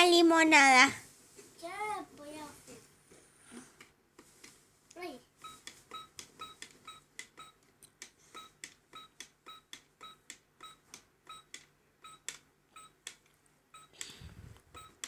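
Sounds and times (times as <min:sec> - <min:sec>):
short beep-like tones: 0:05.4 - 0:07.6, 0:08.4 - 0:13.0, 0:13.8 - 0:14.0, 0:14.8 - 0:15.0.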